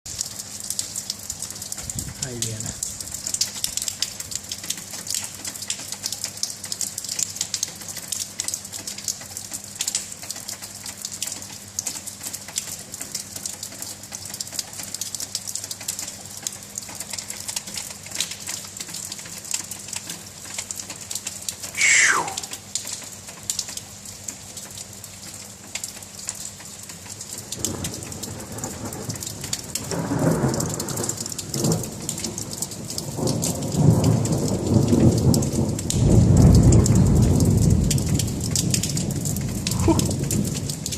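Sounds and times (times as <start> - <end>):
steady rain patter: 0.1 - 40.9
loud sound sliding down in pitch: 21.8 - 22.6.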